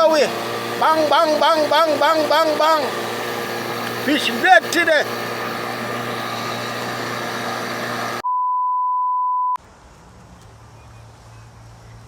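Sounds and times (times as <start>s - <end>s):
censor bleep tone: 8.2s - 9.6s.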